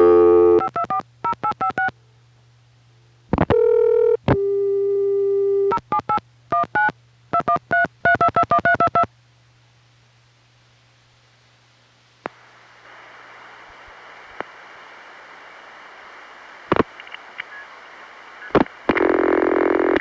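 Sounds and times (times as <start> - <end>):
touch-tone dialing: 6.0 - 9.1.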